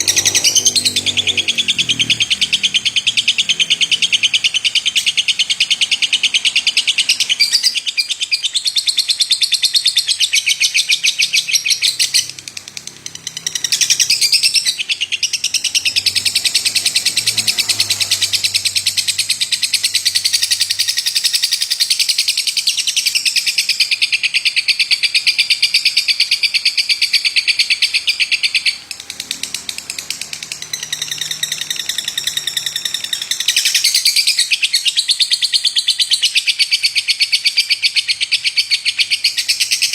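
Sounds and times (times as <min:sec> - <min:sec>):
lovebird chattering trill: 0:00.0 - 0:39.9.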